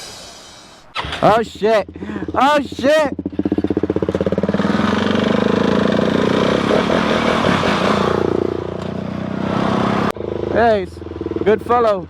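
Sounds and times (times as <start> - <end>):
motorcycle engine running: 0.9 - 12.0.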